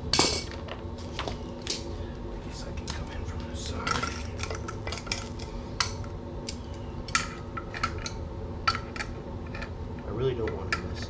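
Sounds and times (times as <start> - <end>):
metal tools clinking on metal: 0.1 - 0.6, 3.6 - 9.7.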